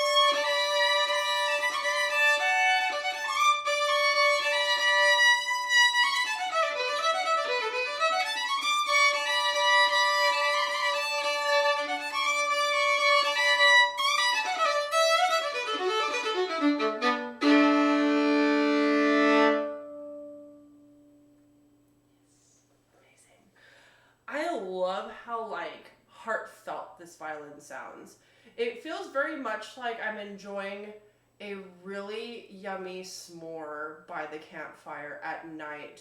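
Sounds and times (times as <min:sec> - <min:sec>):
solo fiddle playing bowed tune: 0:00.0 - 0:21.2.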